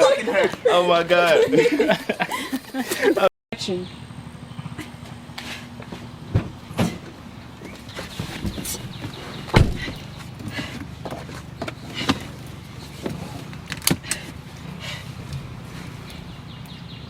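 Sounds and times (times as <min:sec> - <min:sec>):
sharp knocks and clunks: 0:05.8 - 0:12.3
heavy thump: 0:06.3 - 0:07.2, 0:09.4 - 0:10.0.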